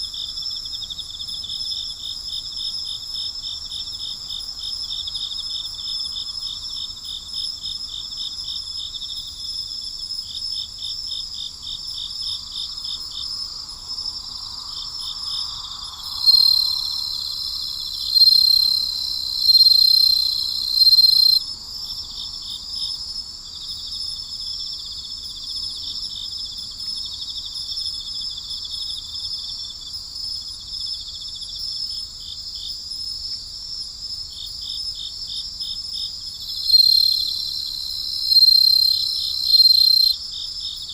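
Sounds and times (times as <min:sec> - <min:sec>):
crickets and insects trilling: 0:11.7 - 0:24.3, 0:36.3 - 0:40.9
loud high insect trill: 0:12.4 - 0:21.5, 0:36.3 - 0:40.9.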